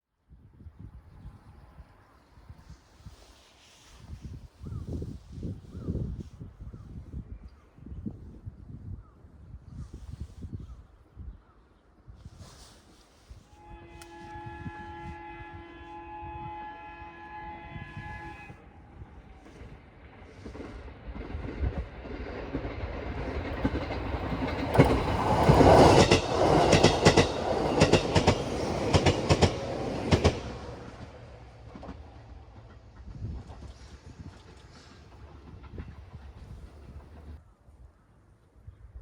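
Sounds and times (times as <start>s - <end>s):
train horn chord: 13.5s - 19.8s
train wheels clickety-clack: 19.4s - 37.4s.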